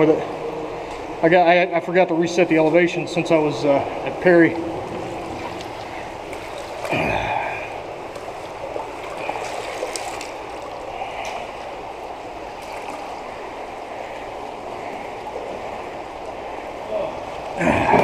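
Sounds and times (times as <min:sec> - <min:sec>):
water running through tunnel: 0:00.0 - 0:18.0.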